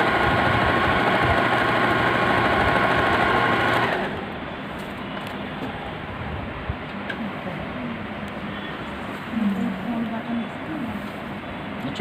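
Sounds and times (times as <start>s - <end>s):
electric sewing machine running: 0.0s - 4.2s.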